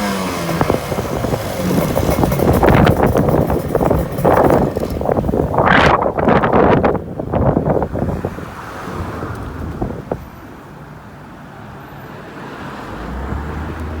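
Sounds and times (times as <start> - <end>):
two-stroke engine throttle blips: 0.0 - 5.8
wind on microphone: 0.1 - 10.5.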